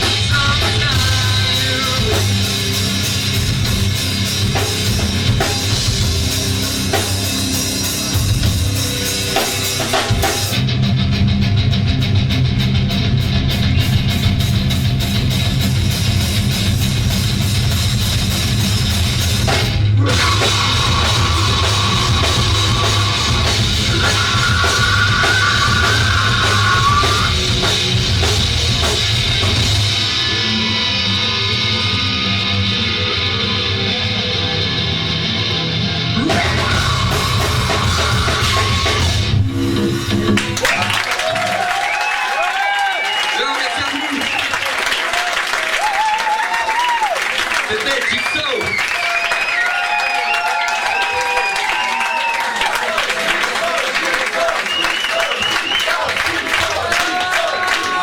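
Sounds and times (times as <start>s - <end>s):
live rock band playing: 0.0s - 41.6s.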